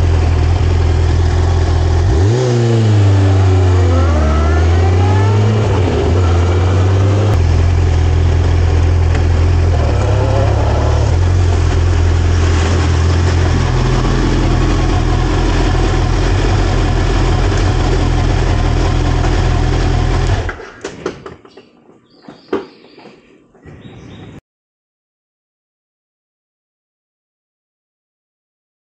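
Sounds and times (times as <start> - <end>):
motorcycle engine idling: 0.0 - 2.4, 3.6 - 20.7.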